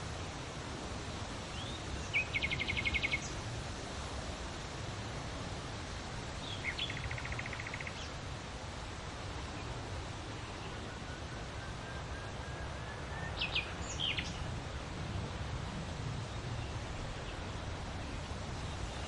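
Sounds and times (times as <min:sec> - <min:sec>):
steady wind noise: 0:00.0 - 0:19.0
small bird singing trill: 0:01.5 - 0:03.4, 0:06.4 - 0:08.2, 0:13.0 - 0:14.4.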